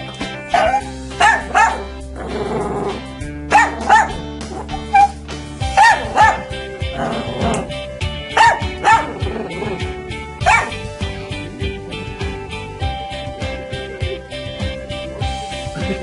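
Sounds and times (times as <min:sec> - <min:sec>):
background music: 0:00.0 - 0:16.0
dog barking: 0:00.5 - 0:01.9, 0:03.5 - 0:04.2, 0:05.8 - 0:06.5, 0:08.4 - 0:09.2, 0:10.4 - 0:10.8.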